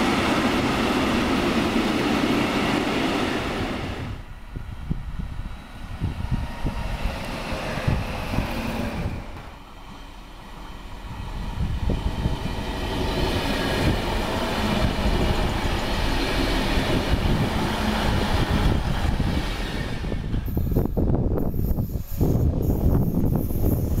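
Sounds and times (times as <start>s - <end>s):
train wheels rumbling on rails: 0.0s - 24.0s
sharp clicks of train wheels: 6.1s - 10.8s.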